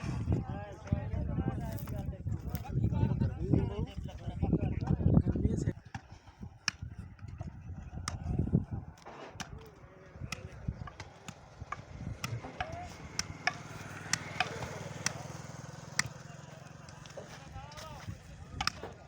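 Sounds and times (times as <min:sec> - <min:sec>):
crowd voices: 0:06.9 - 0:19.0
vehicle engine running: 0:11.8 - 0:18.5.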